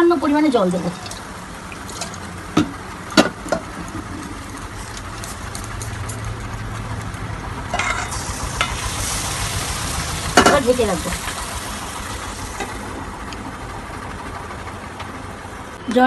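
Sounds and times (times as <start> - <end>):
water poured into hot pan: 0.8 - 2.4, 7.8 - 13.0
paste sizzling in hot oil: 7.8 - 13.1.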